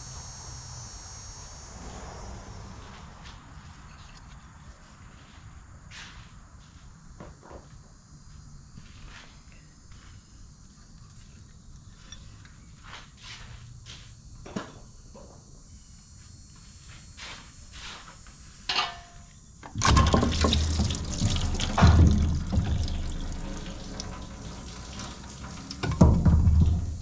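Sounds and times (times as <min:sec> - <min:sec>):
water gushing from hose: 0:19.8 - 0:27.0.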